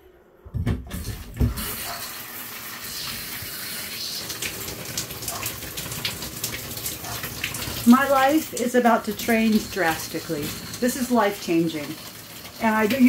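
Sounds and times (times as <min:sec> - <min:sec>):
water gushing from a tap: 0:00.9 - 0:13.0.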